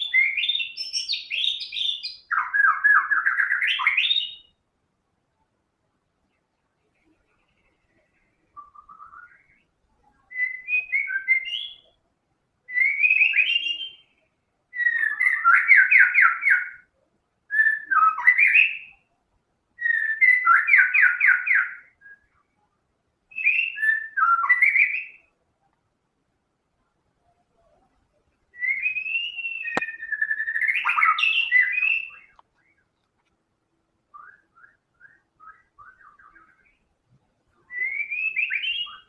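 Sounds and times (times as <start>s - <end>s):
bird singing whistled phrases: 0.0s - 4.6s, 8.5s - 9.7s, 10.3s - 12.0s, 12.7s - 16.9s, 17.5s - 19.1s, 19.8s - 22.5s, 23.3s - 25.3s, 28.5s - 32.9s, 34.1s - 36.8s, 37.6s - 39.0s.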